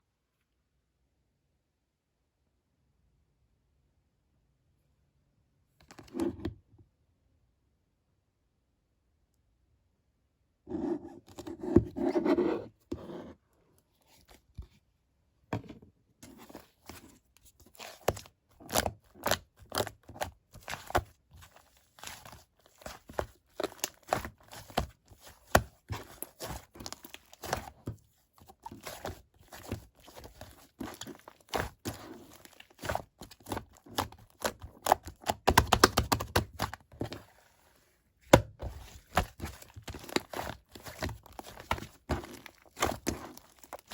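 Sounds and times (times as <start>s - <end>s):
slime popping and crackling: 28.7s - 36.7s.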